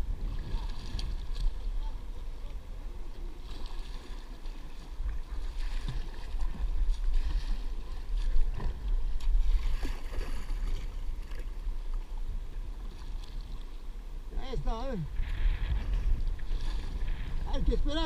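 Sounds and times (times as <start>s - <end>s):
wind buffeting microphone: 0.0s - 3.2s, 15.0s - 18.0s
water noise: 0.0s - 18.0s.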